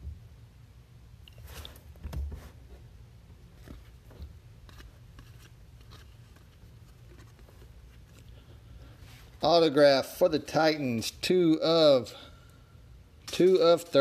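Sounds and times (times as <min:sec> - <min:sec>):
trading cards rustling and clicking: 0:03.6 - 0:08.3.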